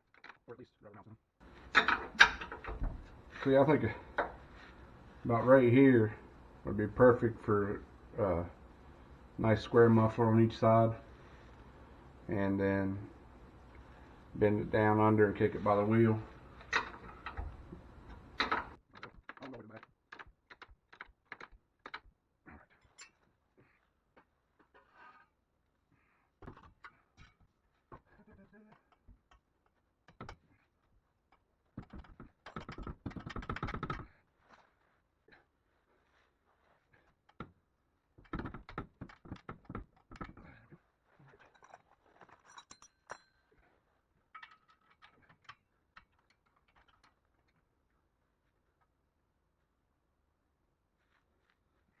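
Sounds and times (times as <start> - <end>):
metal tools clicking and knocking: 1.7 - 2.8, 16.6 - 22.1, 22.8 - 23.3, 31.3 - 34.1, 41.3 - 47.6.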